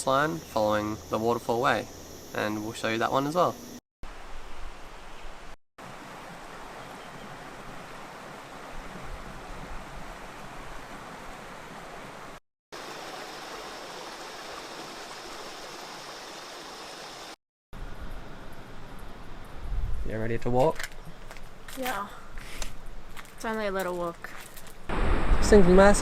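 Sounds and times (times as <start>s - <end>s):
rushing falling water: 5.8s - 17.4s, 24.9s - 26.0s.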